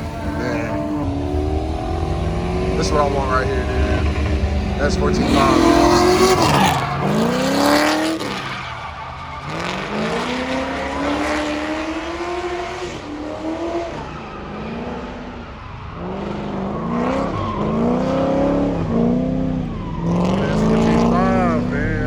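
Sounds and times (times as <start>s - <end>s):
background rumble: 0.0s - 9.4s
car engines revving: 0.0s - 22.0s.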